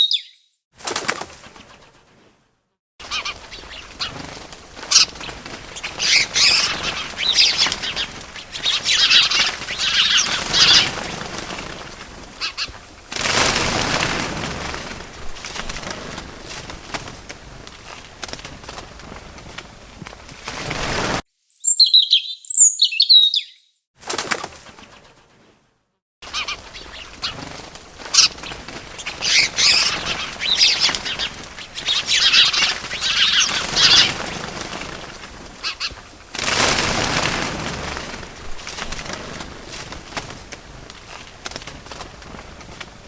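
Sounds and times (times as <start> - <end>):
high bird chirps: 0.0 - 0.6, 21.4 - 23.8
small birds' wings flapping: 0.8 - 2.4, 3.0 - 21.2, 24.0 - 43.0.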